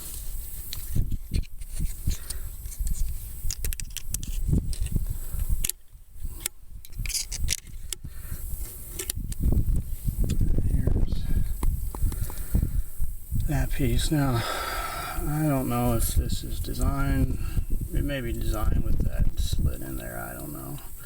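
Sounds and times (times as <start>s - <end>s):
rubbing and scraping of parts: 6.8s - 8.0s.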